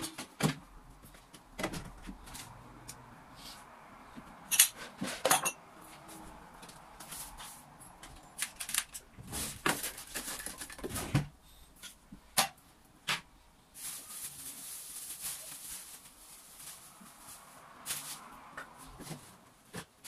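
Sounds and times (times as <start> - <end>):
dishes and cutlery clinking: 4.5 - 5.6.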